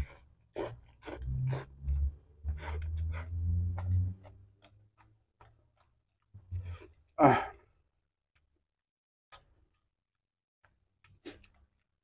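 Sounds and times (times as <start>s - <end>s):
noodles slurped and chewed: 0.0s - 7.2s.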